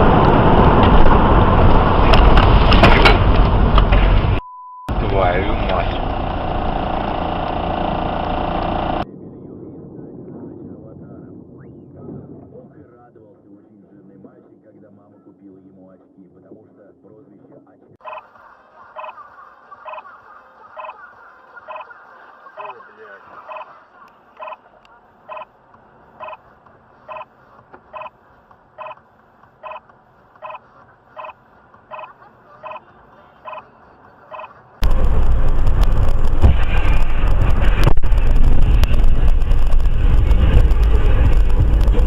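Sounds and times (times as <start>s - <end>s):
road rumble: 0.0s - 11.5s, 18.2s - 42.0s
loud steady wind: 0.0s - 13.6s, 34.8s - 42.0s.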